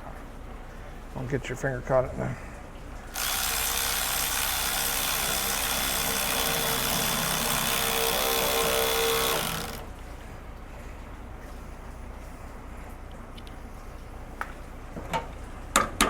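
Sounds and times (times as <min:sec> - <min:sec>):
cordless drill running: 0:03.1 - 0:10.0.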